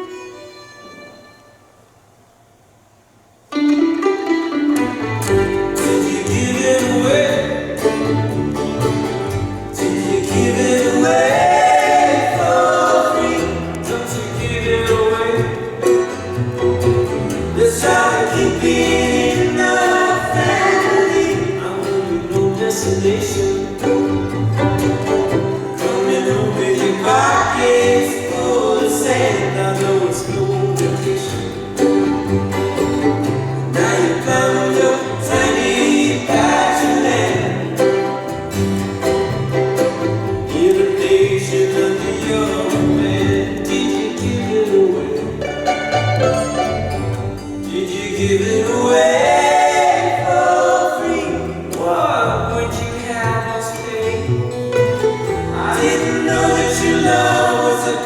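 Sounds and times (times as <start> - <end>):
plucked strings: 3.5 - 58.0
voices singing in harmony: 5.5 - 8.6, 9.3 - 16.4, 17.3 - 38.6, 39.4 - 46.0, 47.6 - 54.6, 55.2 - 58.0.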